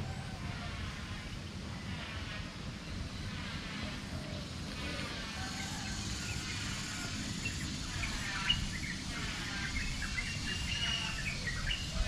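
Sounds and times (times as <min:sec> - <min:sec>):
birds chirping and whistling: 0:05.5 - 0:12.0.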